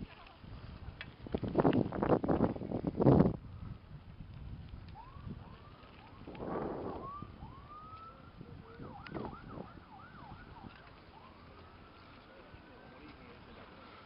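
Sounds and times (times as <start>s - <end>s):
distant sirens wailing: 4.8s - 13.0s
rush of noise: 6.3s - 7.3s.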